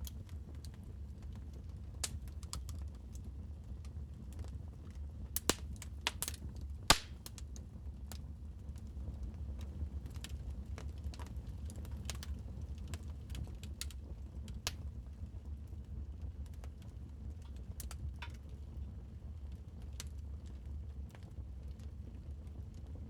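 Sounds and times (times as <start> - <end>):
wood fire crackling: 0.0 - 18.6.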